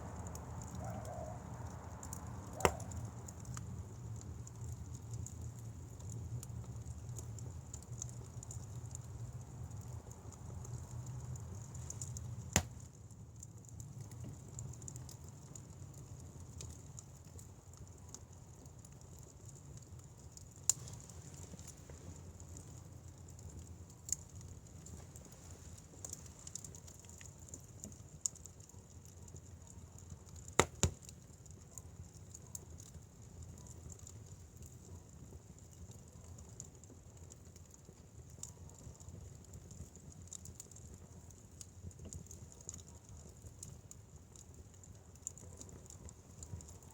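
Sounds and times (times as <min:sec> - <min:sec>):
wood fire rumbling: 0:00.0 - 0:46.9
firewood popping: 0:00.2 - 0:46.9.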